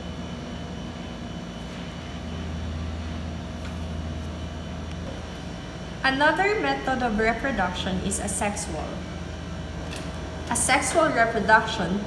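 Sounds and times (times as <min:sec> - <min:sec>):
low mechanical droning hum: 0:00.0 - 0:12.0.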